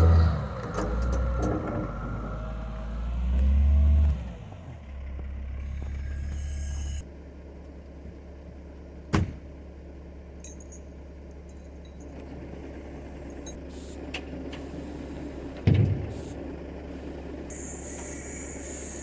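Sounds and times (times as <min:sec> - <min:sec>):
diesel engine running: 0:00.0 - 0:19.0
loud clunks: 0:09.1 - 0:09.4.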